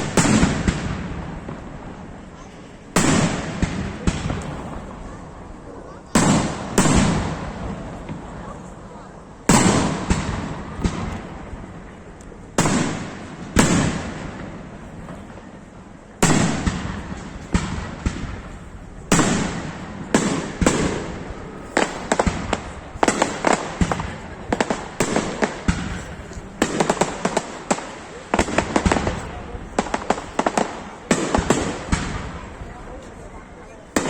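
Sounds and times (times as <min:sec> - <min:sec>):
crackling firework bursts: 0:00.0 - 0:34.0
firework shells bursting: 0:19.1 - 0:32.6.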